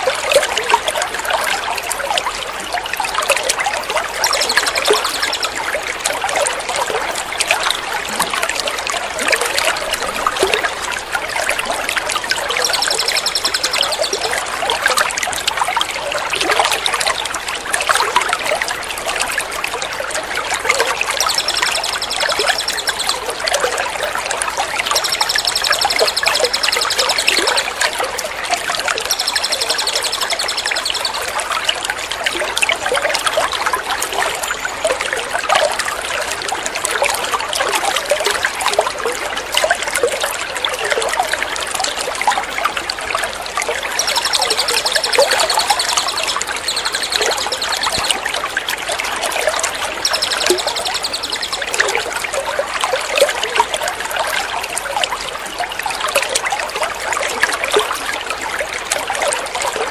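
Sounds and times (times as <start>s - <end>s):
water trickling and splashing: 0.0s - 59.9s
songbird trilling: 4.2s - 5.6s, 11.9s - 14.4s, 21.1s - 23.4s, 24.7s - 27.8s, 28.8s - 31.4s, 43.8s - 48.3s, 50.0s - 52.0s.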